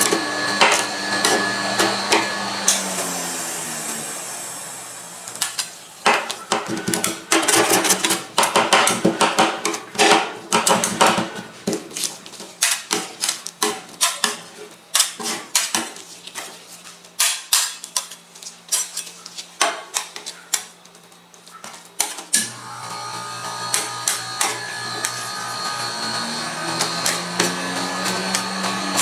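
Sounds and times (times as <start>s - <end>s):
metal spatulas chopping on steel plate: 6.1s - 16.5s, 17.2s - 18.2s, 23.7s - 29.0s.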